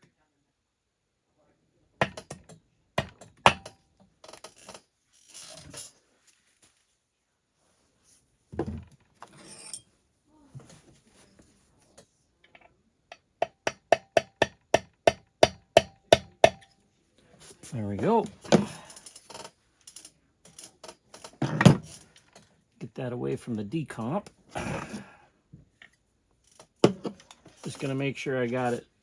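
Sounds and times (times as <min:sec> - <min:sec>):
parts being handled: 0:02.0 - 0:07.0, 0:07.9 - 0:22.7, 0:25.6 - 0:28.9.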